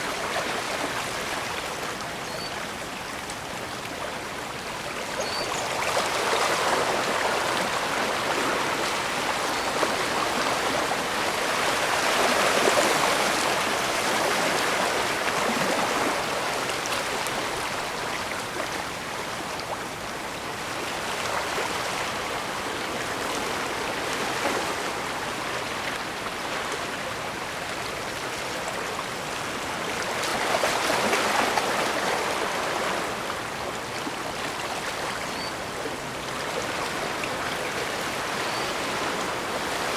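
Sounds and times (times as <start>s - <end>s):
water washing against shore: 0.0s - 20.1s.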